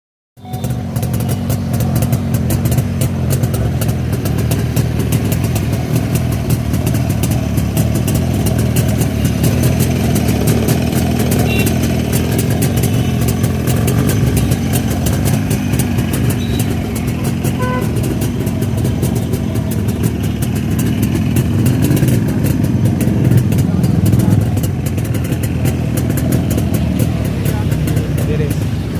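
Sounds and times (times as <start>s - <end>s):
two-stroke motorcycle engine idling: 0.4s - 28.9s.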